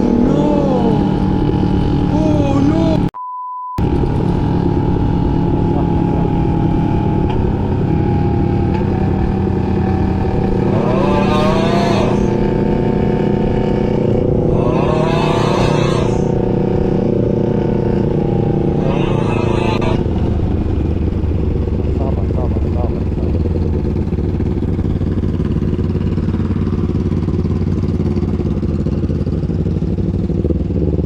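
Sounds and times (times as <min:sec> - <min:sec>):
short voice-like sounds: 0:00.0 - 0:01.2, 0:02.1 - 0:03.2, 0:10.7 - 0:12.4, 0:18.8 - 0:20.0
motorcycle engine cruising: 0:00.0 - 0:03.1, 0:03.8 - 0:31.0.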